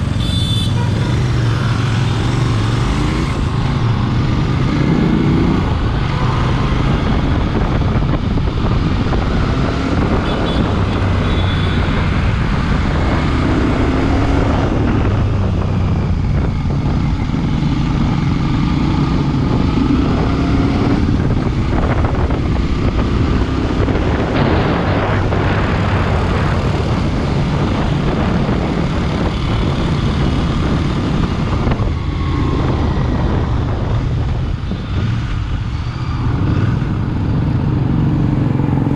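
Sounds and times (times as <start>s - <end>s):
motorcycle engine running: 0.0s - 9.6s
wind noise on microphone: 0.0s - 38.9s.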